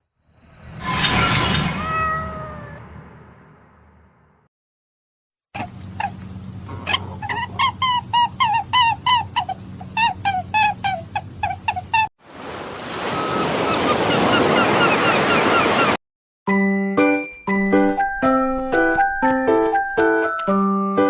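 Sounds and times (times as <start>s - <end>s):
rushing noise: 0.3s - 4.4s
bird calling: 6.8s - 16.0s.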